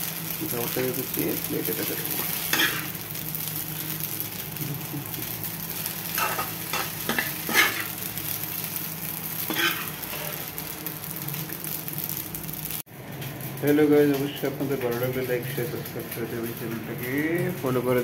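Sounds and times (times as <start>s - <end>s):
food sizzling in a frying pan: 0.0s - 18.0s
metal spoon scraping a pan: 2.2s - 3.0s, 6.2s - 7.9s, 9.5s - 10.4s.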